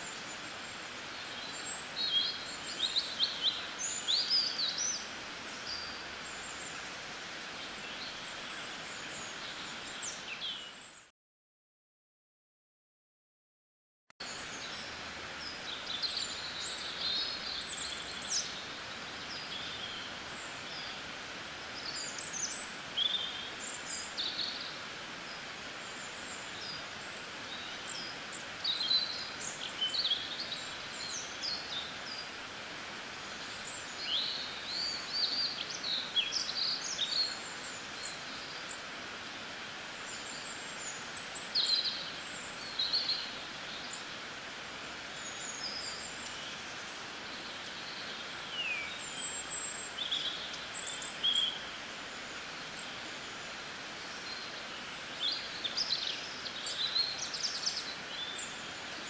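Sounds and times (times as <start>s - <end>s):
outdoor background hiss: 0.0s - 11.1s, 14.2s - 59.0s
small birds chirping: 14.2s - 38.9s, 39.8s - 59.0s.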